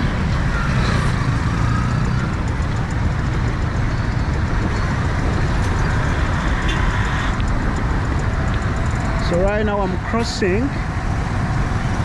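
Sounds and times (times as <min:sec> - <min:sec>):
vehicle engines rumbling and idling: 0:00.0 - 0:12.0.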